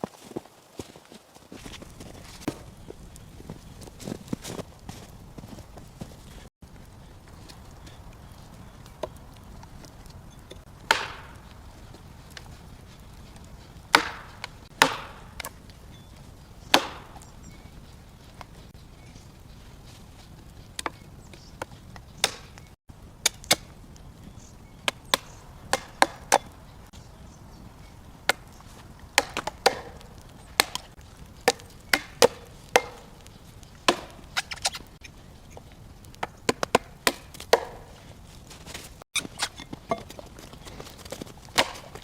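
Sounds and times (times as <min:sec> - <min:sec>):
axe chopping wood: 0:10.5 - 0:11.6, 0:13.8 - 0:15.7, 0:16.7 - 0:17.2, 0:21.6 - 0:23.7, 0:24.9 - 0:26.6, 0:28.2 - 0:33.3, 0:33.9 - 0:34.9, 0:36.2 - 0:38.0, 0:41.1 - 0:42.0.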